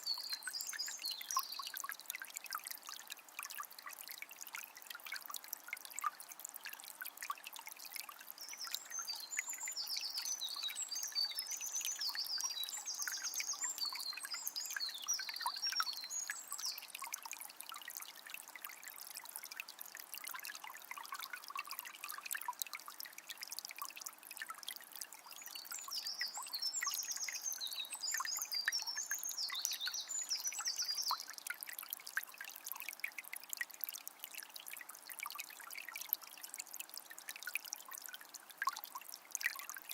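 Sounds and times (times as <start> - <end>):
songbird chirping: 0.0 - 1.8, 8.3 - 17.0, 25.2 - 31.5
spring water trickling: 0.0 - 39.9.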